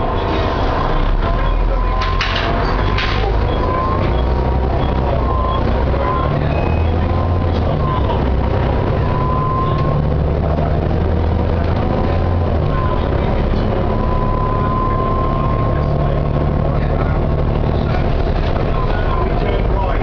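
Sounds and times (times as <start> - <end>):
bus diesel engine rumble: 0.0 - 20.0.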